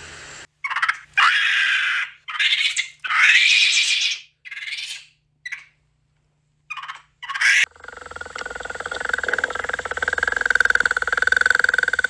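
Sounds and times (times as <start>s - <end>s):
animal harsh cries: 0.7s - 4.8s.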